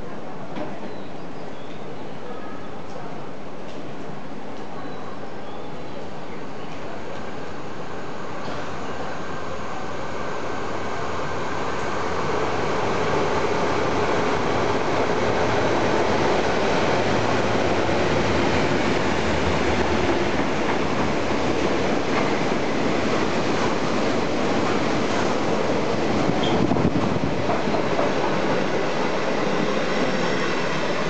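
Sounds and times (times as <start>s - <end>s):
diesel locomotive engines: 1.8s - 31.0s
train wheels rumbling and clattering: 11.7s - 31.0s.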